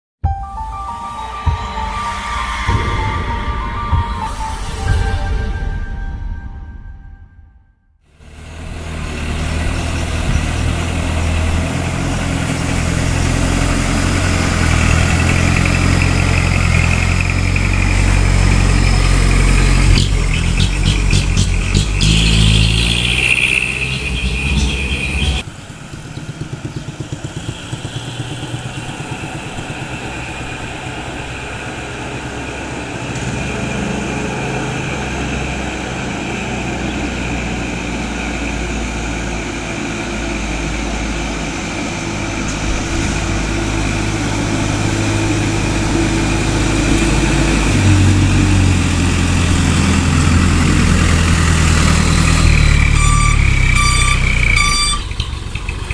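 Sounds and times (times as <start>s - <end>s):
truck diesel engine running: 8.1s - 55.9s.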